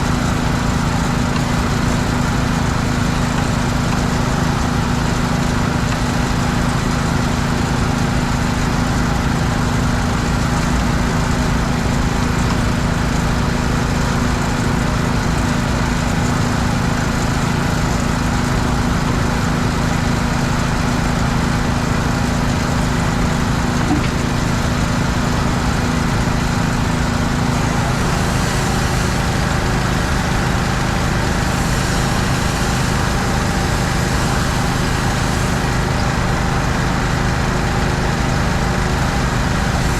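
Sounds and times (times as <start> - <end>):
engine running steadily: 0.0 - 39.9
hiss: 27.6 - 36.7, 39.4 - 39.9.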